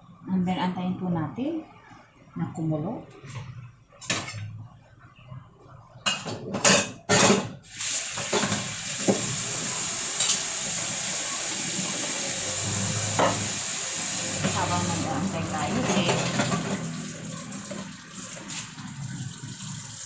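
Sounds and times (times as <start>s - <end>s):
pot hissing on stove: 7.6s - 18.8s
cookware clattering: 8.2s - 9.2s, 15.7s - 16.9s.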